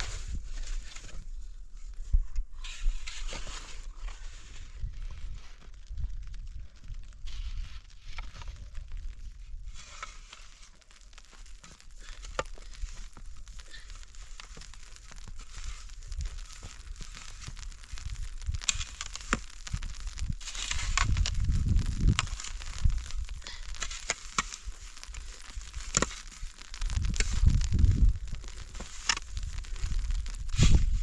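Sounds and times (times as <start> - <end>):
crinkling handling noise: 0.0 - 31.0
low rumble: 19.7 - 23.8.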